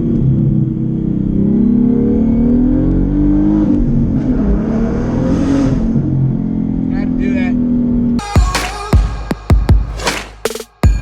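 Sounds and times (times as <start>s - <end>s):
car engine accelerating: 0.0s - 8.3s.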